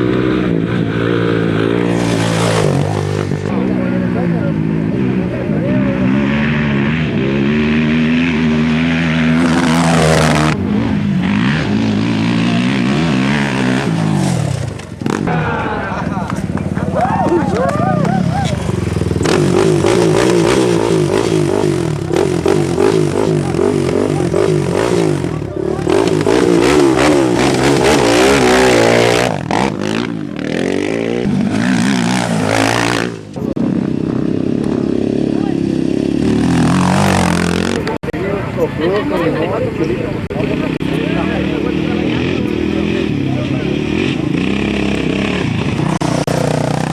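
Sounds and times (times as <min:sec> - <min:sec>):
motorcycles revving and passing: 0:00.0 - 0:46.9
loud rushing noise: 0:00.5 - 0:03.5, 0:12.9 - 0:17.2.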